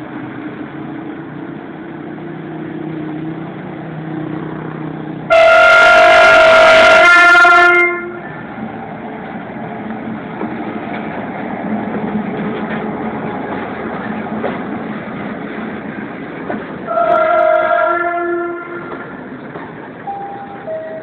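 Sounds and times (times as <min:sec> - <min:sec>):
train wagons rumbling and rattling: 0:00.0 - 0:21.0
train horn: 0:05.3 - 0:08.3, 0:16.9 - 0:19.1.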